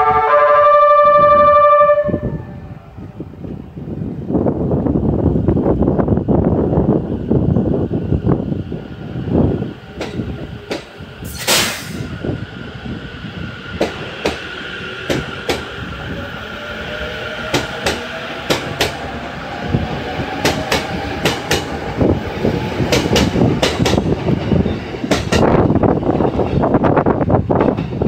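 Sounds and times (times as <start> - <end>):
train wheels clicking over rail joints: 9.8 - 12.2, 13.7 - 15.9, 17.4 - 19.1, 20.3 - 28.0
short hiss: 11.3 - 12.1.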